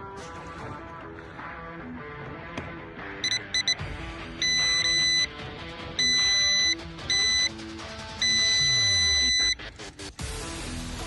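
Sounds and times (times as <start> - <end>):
background music: 0.0 - 11.0
multimeter beeping: 3.2 - 3.8, 4.4 - 5.4, 6.0 - 7.6, 8.2 - 9.6.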